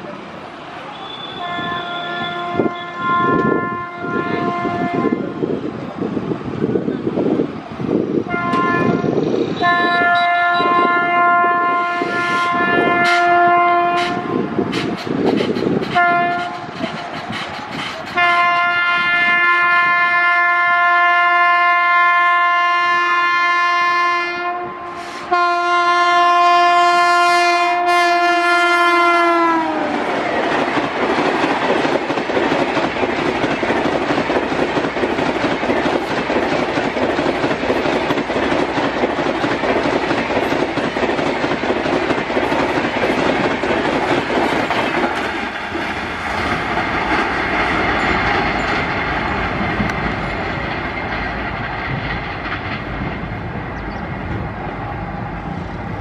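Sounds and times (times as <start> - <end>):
train coaches rumbling past: 0.0 - 56.0
train horn blasts: 0.9 - 5.4, 8.3 - 14.6, 15.9 - 16.7, 18.2 - 30.0
wheel clatter over rail joints: 14.0 - 18.5, 30.2 - 54.5.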